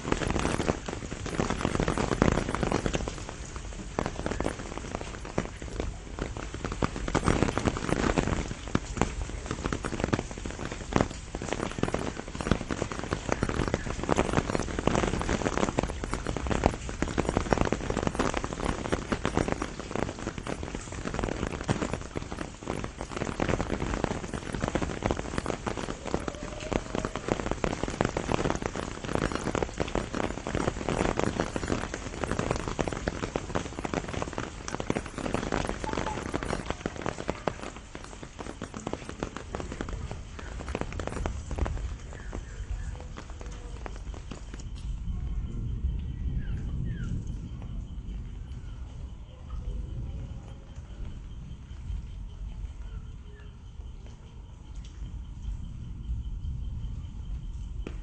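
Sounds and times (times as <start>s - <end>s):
rain pattering on leaves: 0.0s - 58.0s.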